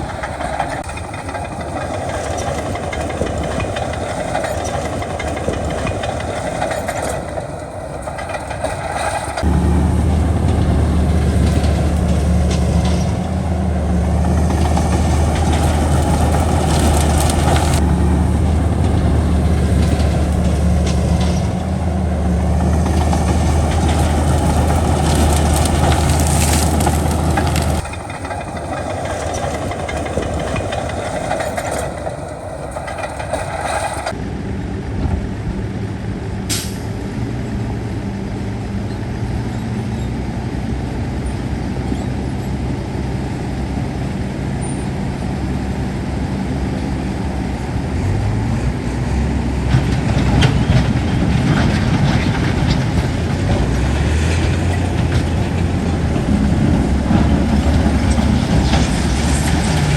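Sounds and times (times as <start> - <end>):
rattling and knocking: 0.0 - 34.1, 49.7 - 59.9
heavy diesel engine running: 0.0 - 59.9.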